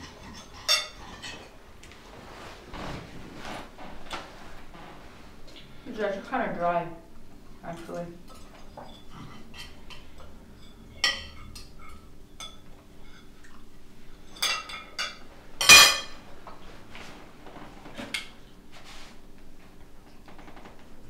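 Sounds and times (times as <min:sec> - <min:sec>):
mugs and dishes clinking: 0:00.0 - 0:01.5, 0:08.3 - 0:13.6, 0:14.2 - 0:16.2
low steady hum: 0:00.0 - 0:21.0.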